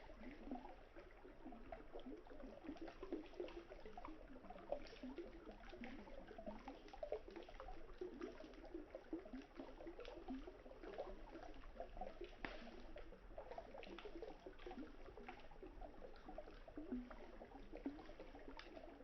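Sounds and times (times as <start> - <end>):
campfire crackling and popping: 12.2 - 13.0.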